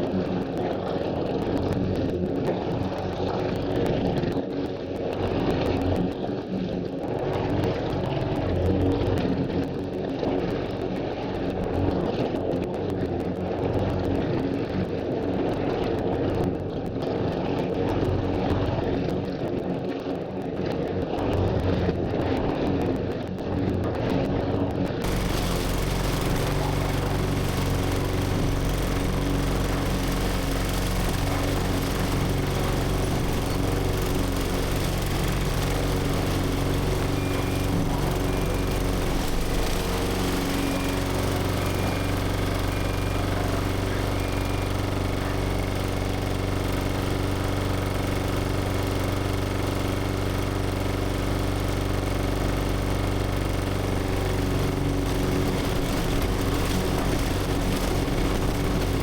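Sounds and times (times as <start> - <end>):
lawn mower engine running: 25.0 - 59.0.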